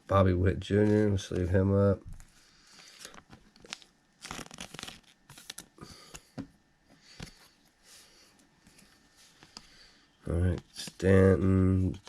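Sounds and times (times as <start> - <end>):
cards rustling and clicking: 2.2 - 7.5.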